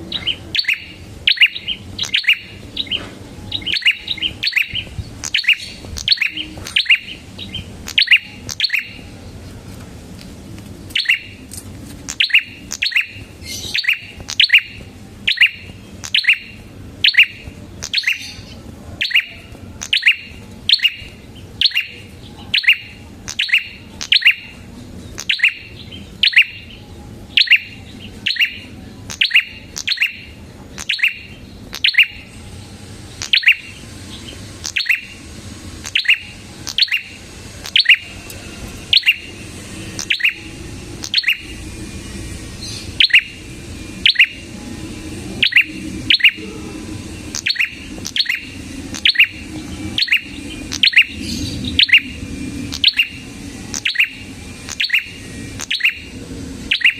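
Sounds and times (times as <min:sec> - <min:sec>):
bird singing sharp high chirps: 0:00.0 - 0:09.1, 0:10.9 - 0:11.5, 0:12.1 - 0:56.9.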